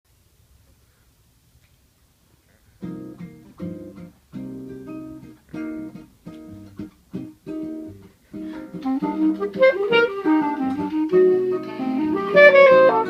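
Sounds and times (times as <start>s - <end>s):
acoustic guitar plucked chords: 2.8s - 13.0s.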